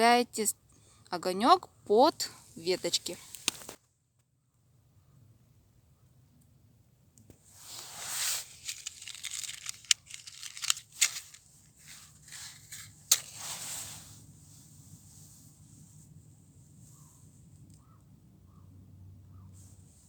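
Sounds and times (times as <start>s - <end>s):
twigs crackling in kindling fire: 7.6s - 13.6s
sharp snaps of twigs: 8.6s - 11.4s, 13.1s - 13.4s.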